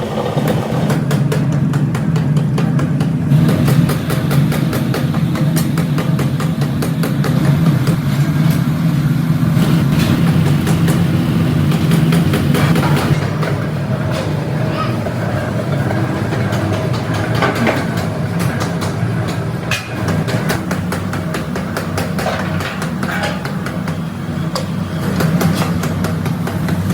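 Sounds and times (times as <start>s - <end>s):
factory machinery humming: 0.0s - 26.9s
clicks and knocks: 15.1s - 24.0s.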